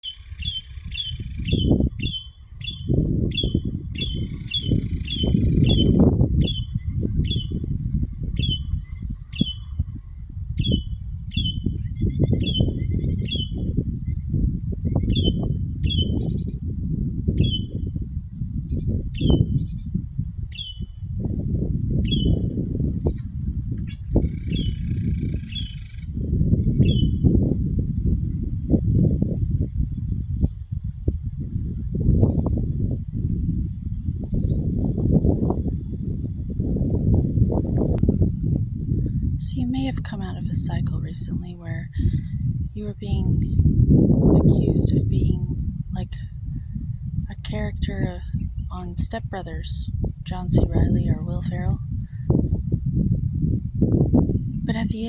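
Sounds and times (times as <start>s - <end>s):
bird chirping: 0.0s - 7.6s, 23.9s - 26.1s.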